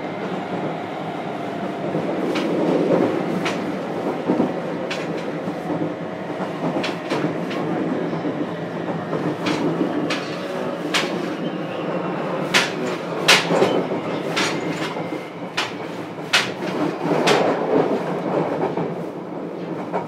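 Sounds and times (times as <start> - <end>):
train wheels rumbling on rail: 0.0 - 20.0
wheels clicking over rail joints: 6.4 - 7.9, 8.8 - 11.3.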